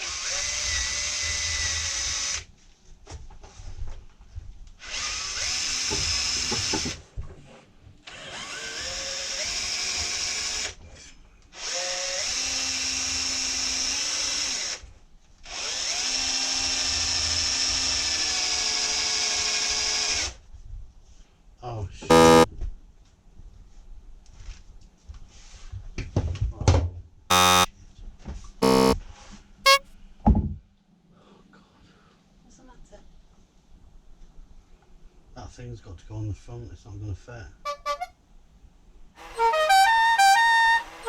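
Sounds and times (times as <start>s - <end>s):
electric drill boring into metal: 22.1s - 22.5s.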